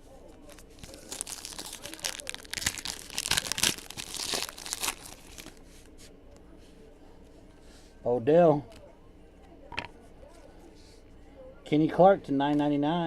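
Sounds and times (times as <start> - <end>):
wrapper crinkling and tearing: 0.4 - 5.6.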